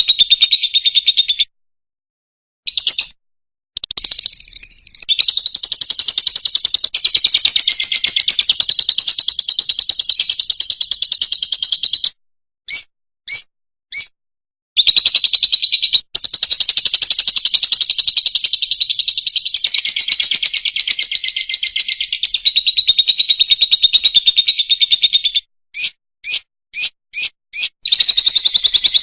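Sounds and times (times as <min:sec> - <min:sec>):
bird chattering trill: 0:00.0 - 0:01.5, 0:02.7 - 0:03.2, 0:03.8 - 0:14.1, 0:14.8 - 0:29.0
bird chirps: 0:00.0 - 0:01.5, 0:02.7 - 0:03.2, 0:03.8 - 0:14.2, 0:14.8 - 0:29.0.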